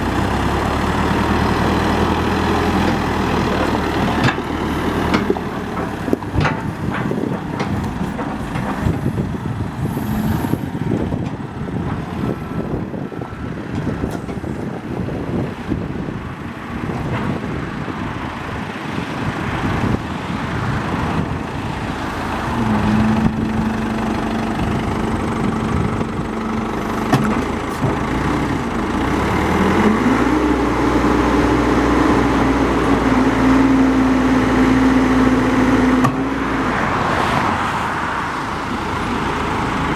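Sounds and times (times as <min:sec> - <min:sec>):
diesel engine running: 0:00.0 - 0:39.9
knocks and clanks: 0:03.6 - 0:09.1, 0:27.0 - 0:28.5.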